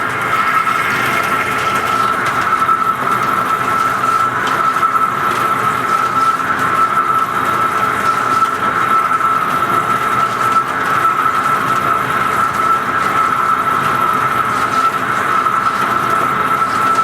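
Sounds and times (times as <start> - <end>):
metal lathe whining: 0.0 - 9.6.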